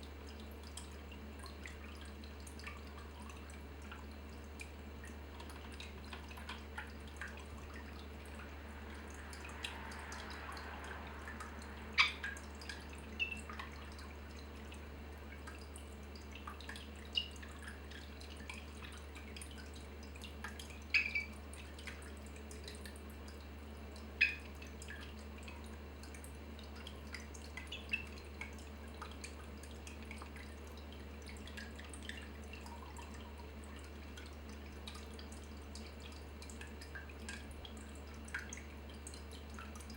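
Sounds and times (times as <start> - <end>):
faint low hum: 0.0 - 39.9
water drops plinking: 20.8 - 21.3, 24.1 - 25.0.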